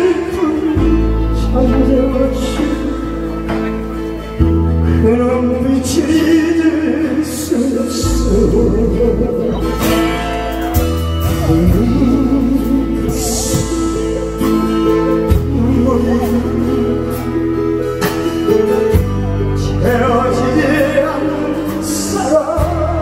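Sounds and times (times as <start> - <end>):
man singing pop song over pa: 0.0 - 23.0.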